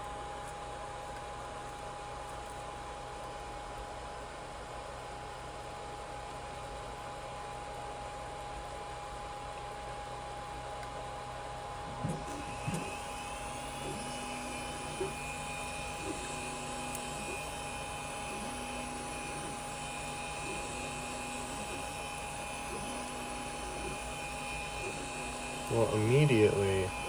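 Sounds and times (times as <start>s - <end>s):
cooling fans whining: 0.0s - 27.0s
stepper motors humming: 11.6s - 27.0s.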